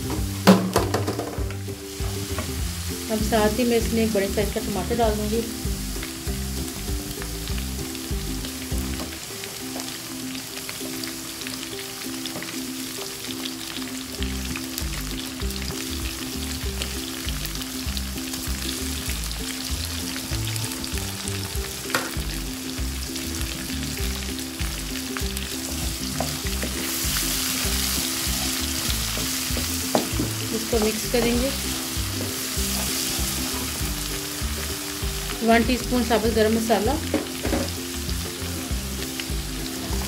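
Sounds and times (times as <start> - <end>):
food sizzling in hot oil: 0.0 - 40.0.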